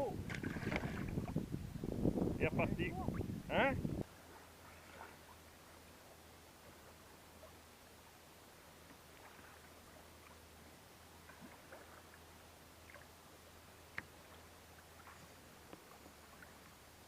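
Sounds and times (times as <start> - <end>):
water dripping and lapping hull: 0.2 - 1.5, 4.1 - 7.7, 8.8 - 17.0.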